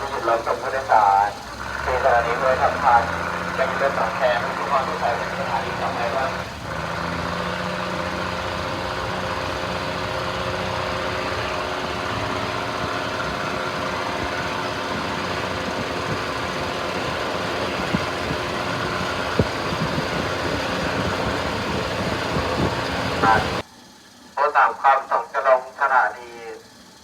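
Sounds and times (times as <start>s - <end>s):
railcar rumble and vibration: 0.0s - 23.7s
diesel railcar engine running: 0.0s - 27.0s.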